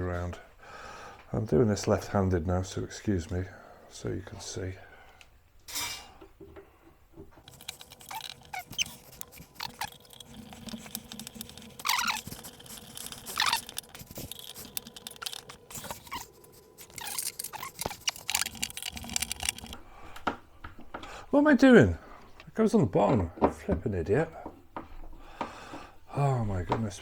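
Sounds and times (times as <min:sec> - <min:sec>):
screwdriver turning screws: 0:07.4 - 0:19.8
short squeaks: 0:07.4 - 0:19.8.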